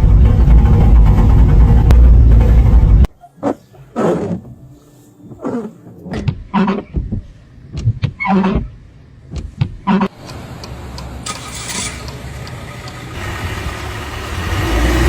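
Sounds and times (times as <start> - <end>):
car engine running: 0.0 - 3.1, 10.2 - 15.0.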